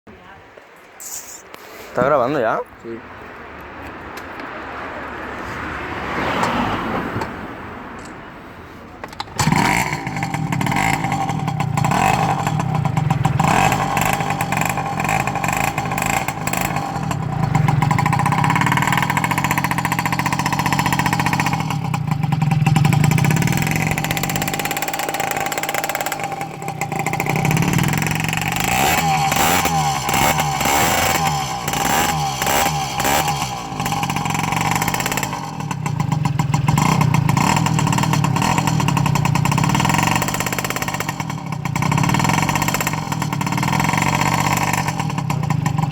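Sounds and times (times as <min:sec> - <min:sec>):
motorcycle engine revving: 0:09.2 - 0:45.9.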